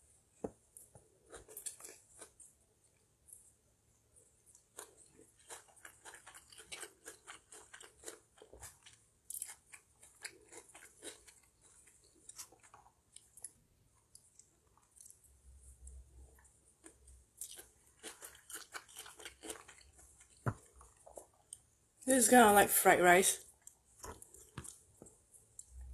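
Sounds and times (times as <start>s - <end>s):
chewing noodles: 1.0s - 3.4s, 4.4s - 21.7s.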